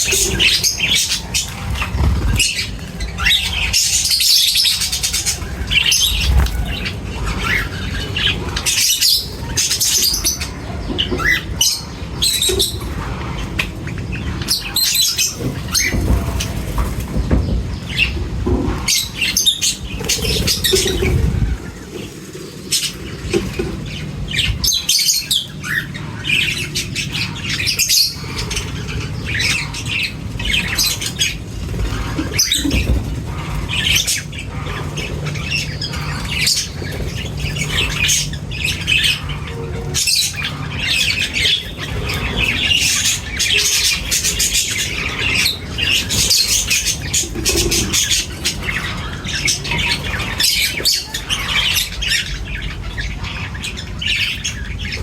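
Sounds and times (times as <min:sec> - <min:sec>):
birds squawking and chirping: 0:00.0 - 0:55.0.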